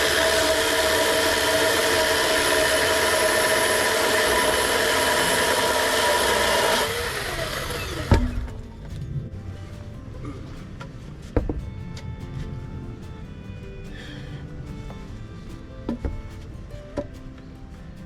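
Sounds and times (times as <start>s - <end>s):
chainsaw revving: 0.0s - 8.7s
thump: 8.1s - 8.7s.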